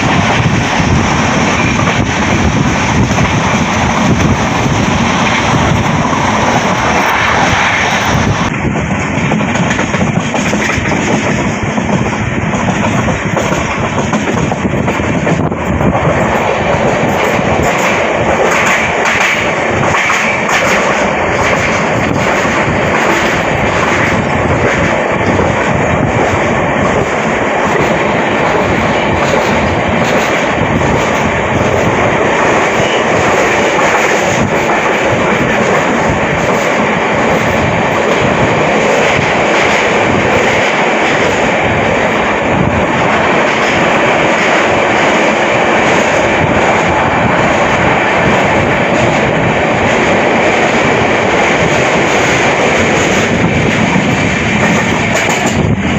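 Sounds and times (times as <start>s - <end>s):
train wheels rumbling on track: 0.0s - 55.9s.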